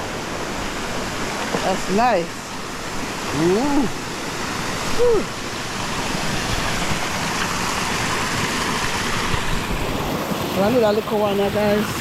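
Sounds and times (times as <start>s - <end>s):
river water flowing: 0.0s - 12.0s.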